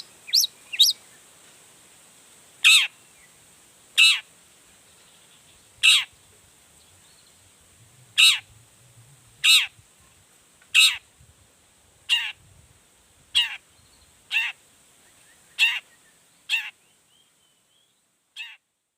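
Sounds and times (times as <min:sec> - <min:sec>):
bird giving harsh rasping calls: 0:00.0 - 0:01.0, 0:02.6 - 0:02.9, 0:04.0 - 0:04.3, 0:08.2 - 0:08.5, 0:09.4 - 0:09.7, 0:10.7 - 0:11.0, 0:12.1 - 0:12.4, 0:13.4 - 0:13.6, 0:14.3 - 0:14.6, 0:15.6 - 0:15.8, 0:16.5 - 0:16.7.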